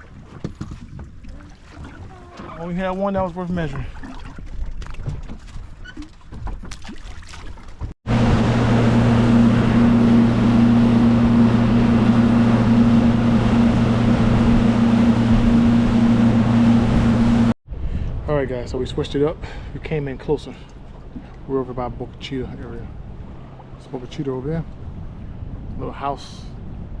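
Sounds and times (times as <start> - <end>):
rush of wind and water: 0.0 - 27.0
outboard motor running: 7.8 - 17.6, 20.5 - 25.5.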